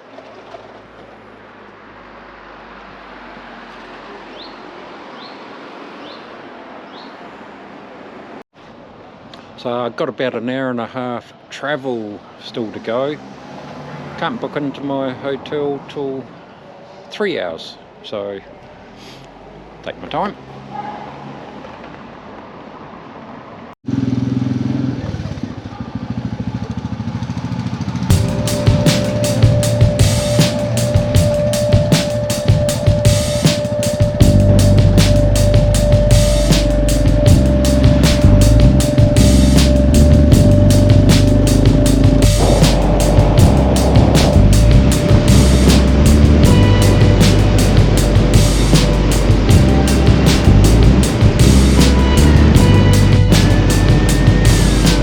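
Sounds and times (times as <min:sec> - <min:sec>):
wind and road rush: 0:00.0 - 0:09.6, 0:13.0 - 0:17.1, 0:20.4 - 0:55.0
low background noise: 0:00.0 - 0:20.7
motorcycle engine running: 0:23.9 - 0:55.0
high rising chirps: 0:28.1 - 0:55.0.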